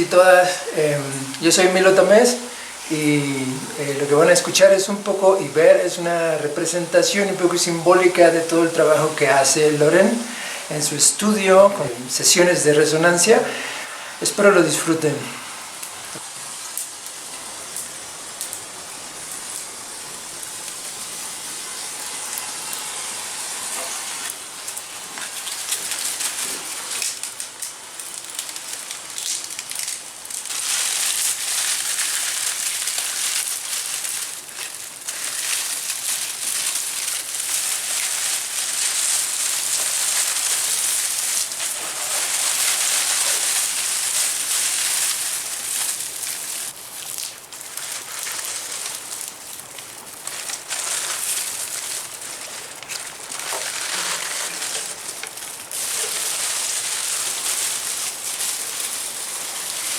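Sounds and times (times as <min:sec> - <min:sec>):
hissing crackling noise: 0:00.0 - 0:59.9.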